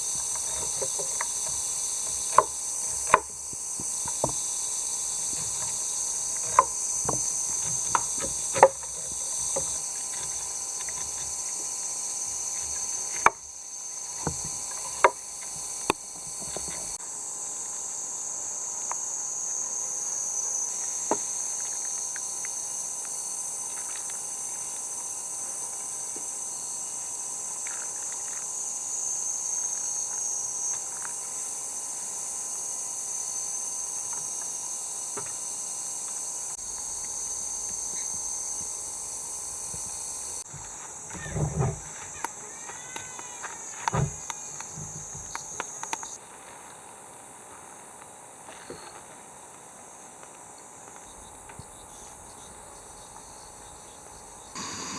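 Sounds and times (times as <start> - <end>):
sharp knocks and clicks: 0.0 - 11.4, 12.6 - 13.5, 14.2 - 17.0
insects chirring: 0.0 - 54.9.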